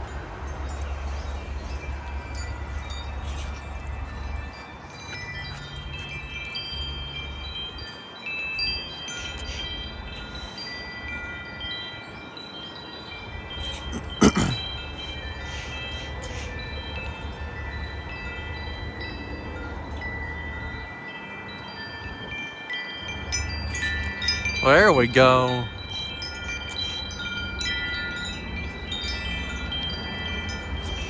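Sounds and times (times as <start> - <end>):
metal wind chimes ringing: 0.0 - 31.0.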